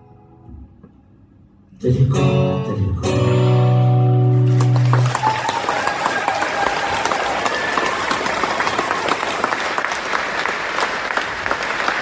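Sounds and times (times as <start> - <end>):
audience clapping: 4.3 - 12.0.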